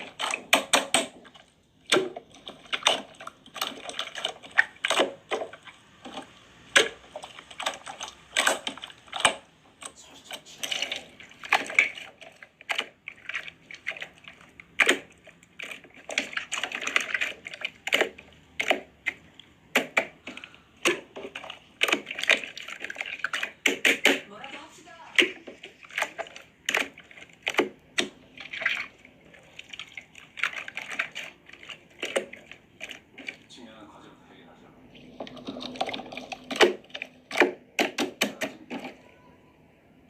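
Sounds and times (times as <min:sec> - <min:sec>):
rapid irregular clicking: 0:00.0 - 0:33.7.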